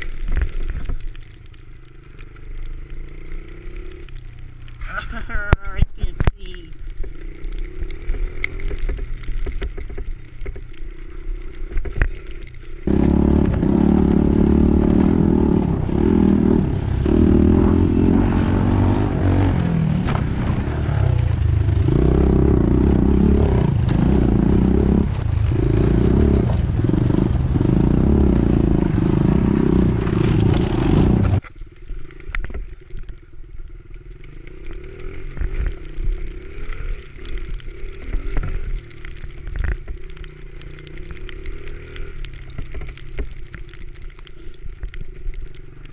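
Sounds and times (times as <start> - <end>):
pit bike engine revving: 11.8 - 31.4, 33.9 - 39.4.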